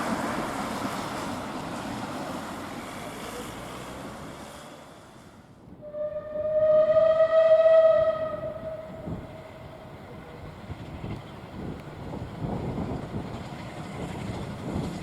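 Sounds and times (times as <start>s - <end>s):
steam train rushing past: 0.0s - 15.0s
steam whistle: 5.8s - 9.6s.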